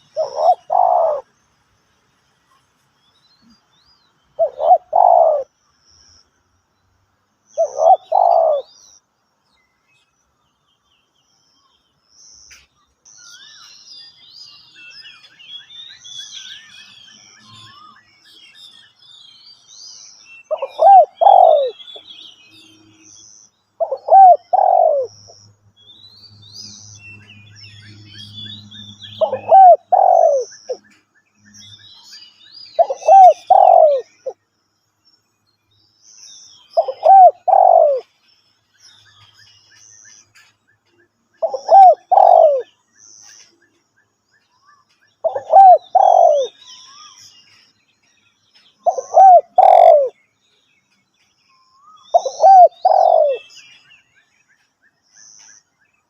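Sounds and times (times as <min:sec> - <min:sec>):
dove cooing: 0:00.0 - 0:01.3, 0:04.4 - 0:05.5, 0:07.6 - 0:08.7, 0:20.5 - 0:21.8, 0:23.8 - 0:25.2, 0:29.2 - 0:30.8, 0:32.8 - 0:34.4, 0:36.8 - 0:38.1, 0:41.4 - 0:42.7, 0:45.2 - 0:46.6, 0:48.8 - 0:50.1, 0:52.1 - 0:53.5
small birds chirping: 0:00.0 - 0:56.0.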